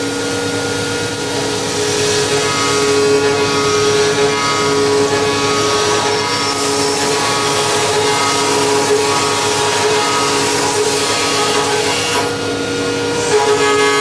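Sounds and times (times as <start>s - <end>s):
machining center whirring: 0.0s - 14.0s.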